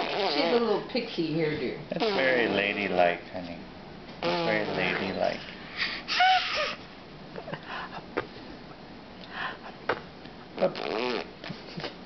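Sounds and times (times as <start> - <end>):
baby breathy puff: 5.7 - 6.8
baby vocal sound: 6.0 - 6.8.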